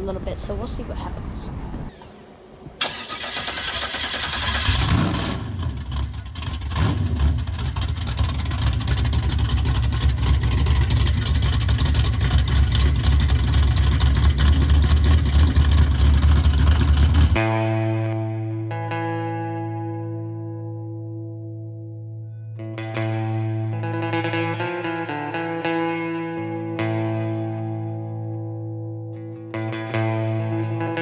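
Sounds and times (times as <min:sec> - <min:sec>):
car engine revving: 0:01.9 - 0:17.4.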